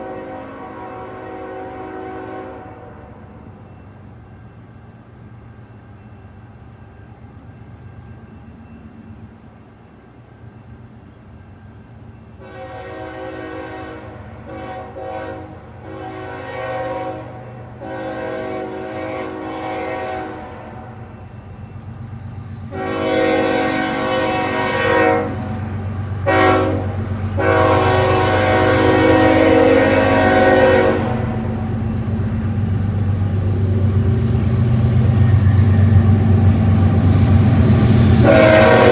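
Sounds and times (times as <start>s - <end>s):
train air horn blasts: 0.0s - 3.6s, 12.4s - 21.2s, 22.7s - 31.6s, 36.1s - 38.9s
diesel locomotive rumble: 10.4s - 38.9s.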